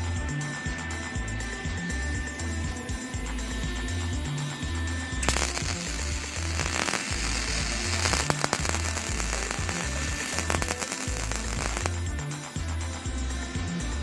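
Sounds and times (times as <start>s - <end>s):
background music with bass line: 0.0s - 14.0s
welding arc crackling: 5.2s - 12.0s.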